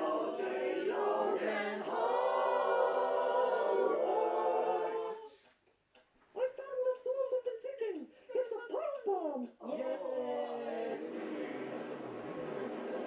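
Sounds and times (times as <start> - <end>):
voices singing a cappella: 0.0 - 5.5.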